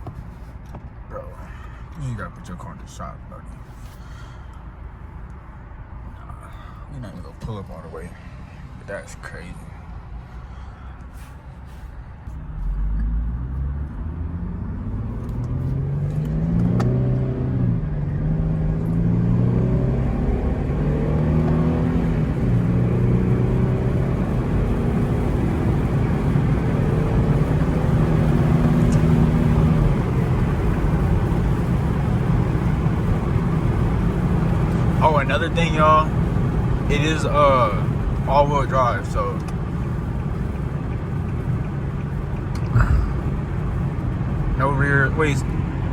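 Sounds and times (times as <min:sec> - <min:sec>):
road noise: 0:00.0 - 0:45.9
car engine accelerating hard: 0:12.3 - 0:45.9.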